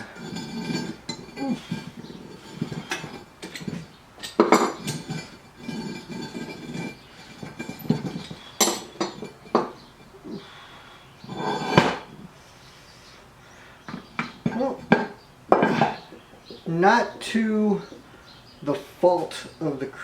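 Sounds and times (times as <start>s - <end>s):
metal tools clinking and clanking: 0.0s - 10.5s, 11.2s - 12.2s, 13.9s - 16.2s
scraping and rustling: 0.0s - 19.0s.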